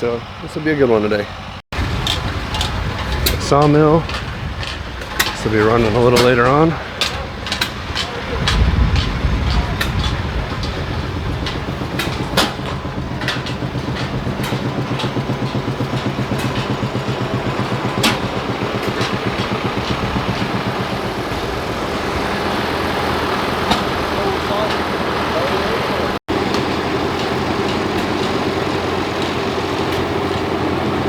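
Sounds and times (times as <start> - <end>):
engine chugging: 0.0 - 31.0
sharp clicks or knocks: 2.0 - 21.8.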